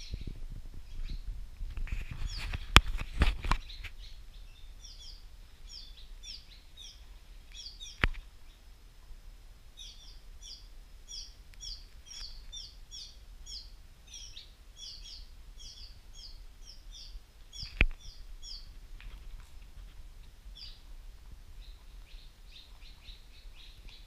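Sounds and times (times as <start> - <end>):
small bird chirping: 0.0 - 1.3, 1.9 - 8.7, 9.7 - 19.2, 20.2 - 24.0.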